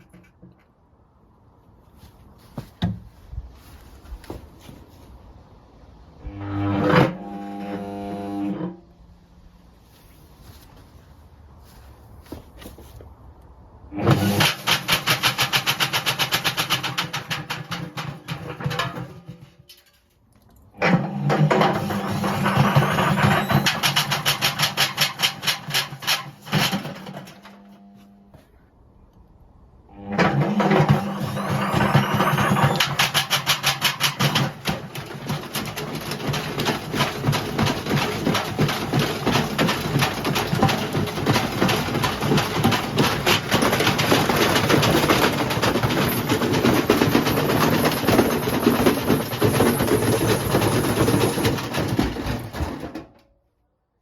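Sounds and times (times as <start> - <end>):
washing machine drum rattling: 21.6 - 27.5, 30.5 - 53.1.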